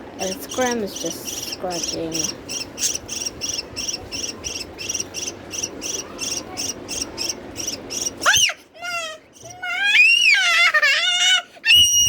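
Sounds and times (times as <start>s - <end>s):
insect chirping: 0.2s - 8.2s.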